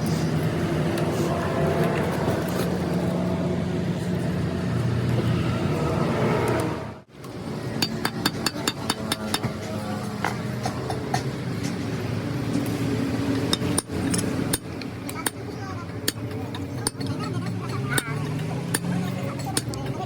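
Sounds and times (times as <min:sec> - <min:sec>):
mechanical drone: 0:00.0 - 0:10.0.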